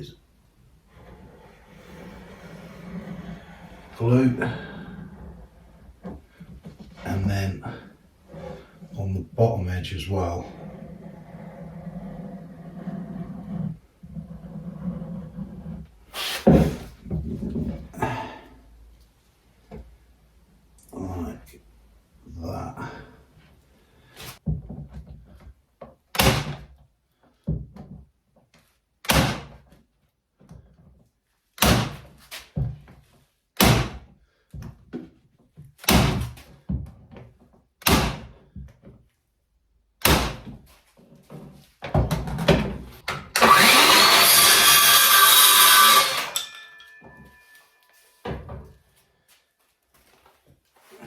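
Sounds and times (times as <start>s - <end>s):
tack gun shots: 33.6s - 34.0s, 37.8s - 38.3s, 40.0s - 40.4s.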